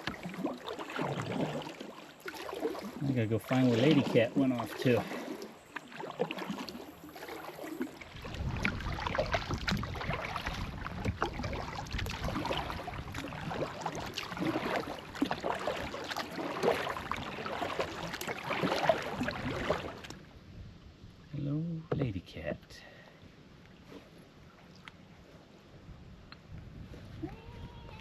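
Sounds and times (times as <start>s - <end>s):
kayak paddle splashing in water: 0.0s - 20.2s
wind rumble on microphone: 8.0s - 14.7s, 19.1s - 21.5s, 25.1s - 28.0s.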